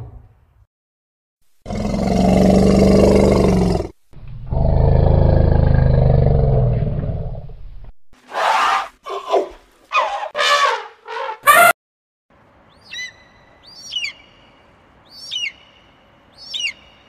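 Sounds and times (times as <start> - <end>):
elephant low roars: 1.6 - 7.6
elephant shrill trumpeting: 8.3 - 11.7.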